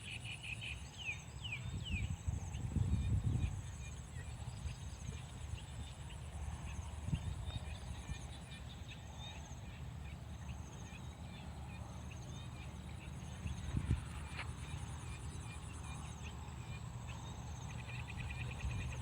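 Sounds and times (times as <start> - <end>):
frogs and insects chirping: 0.0 - 19.0
crickets trilling: 10.4 - 19.0.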